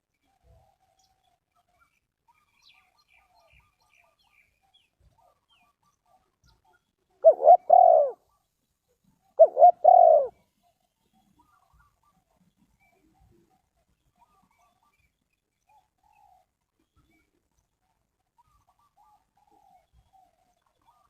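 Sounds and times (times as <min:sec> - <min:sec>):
dove cooing: 0:07.2 - 0:08.2, 0:09.4 - 0:10.4.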